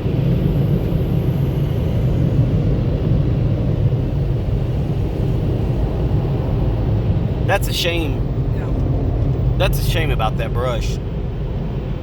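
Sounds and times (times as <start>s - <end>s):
car wash dryer blowers: 0.0s - 12.0s.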